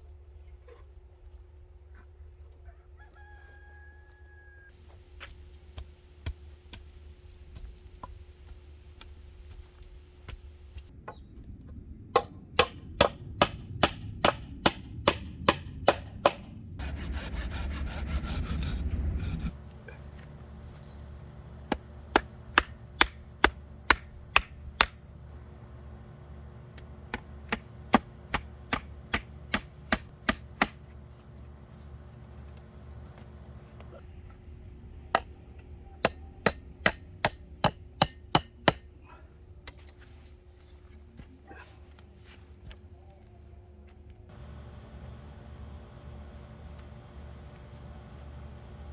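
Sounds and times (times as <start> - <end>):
hammer blows with metallic ring: 21.7 - 25.1, 26.8 - 30.9, 36.0 - 39.1.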